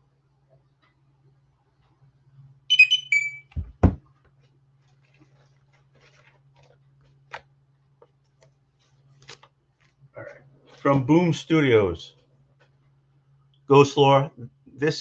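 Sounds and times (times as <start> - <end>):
electronic alert beeps: 2.7 - 3.5
dull thumps: 3.5 - 4.1.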